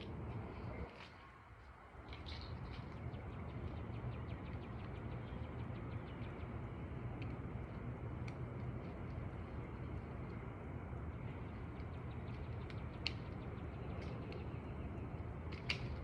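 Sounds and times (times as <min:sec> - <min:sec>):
steady low rumble: 0:00.0 - 0:16.0
small birds chirping: 0:02.0 - 0:06.8.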